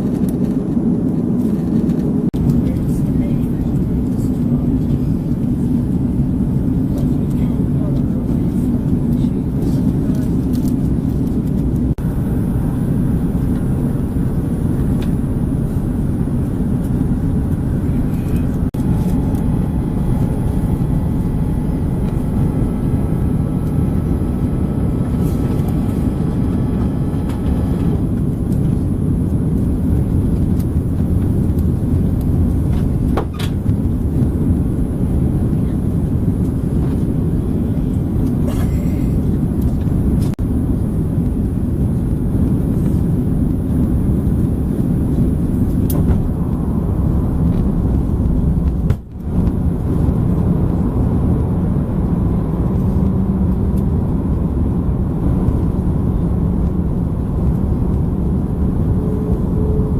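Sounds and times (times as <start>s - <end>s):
airplane cabin roar: 0.0s - 59.9s
faint high whine: 12.0s - 39.2s, 57.0s - 59.9s.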